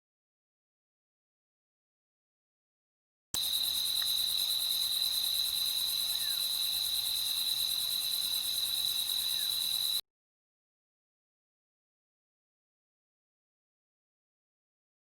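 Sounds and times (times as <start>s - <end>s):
crickets trilling: 3.4s - 10.0s.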